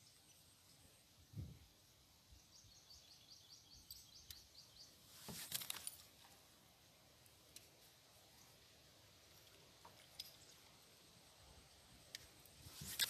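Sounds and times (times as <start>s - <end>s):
bird chirping: 2.3s - 5.0s.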